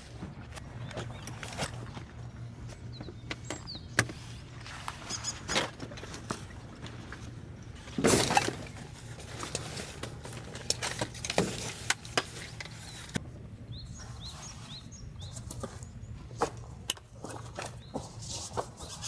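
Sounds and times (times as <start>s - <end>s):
bird chirping: 2.8s - 4.0s, 12.8s - 16.2s.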